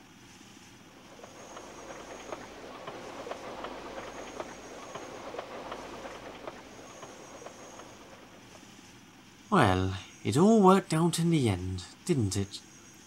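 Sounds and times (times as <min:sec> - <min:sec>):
train wheels clattering on rails: 0:00.9 - 0:09.8.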